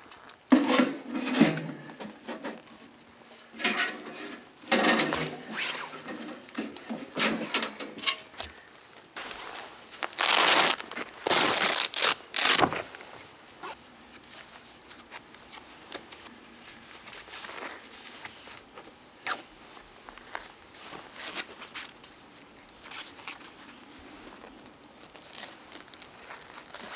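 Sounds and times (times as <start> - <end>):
crinkling rustling handling noise: 1.8 - 18.8, 19.6 - 26.9.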